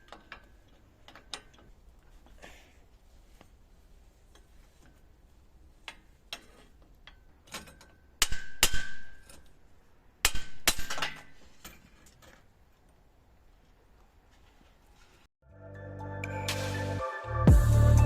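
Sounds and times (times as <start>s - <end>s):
metal clinking and clanging: 0.0s - 2.4s, 5.8s - 9.6s.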